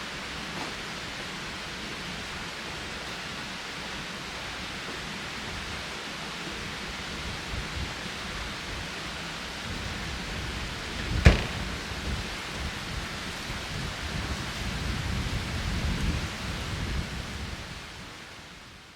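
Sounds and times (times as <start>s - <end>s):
wind buffeting microphone: 9.7s - 17.9s
sharp knock: 11.0s - 12.0s.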